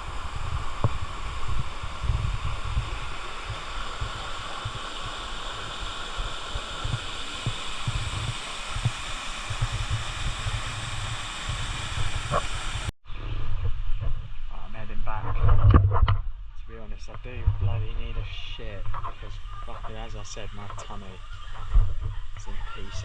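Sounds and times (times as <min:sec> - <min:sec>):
waterfall pouring: 0:00.0 - 0:12.9
wind buffeting microphone: 0:00.0 - 0:23.0.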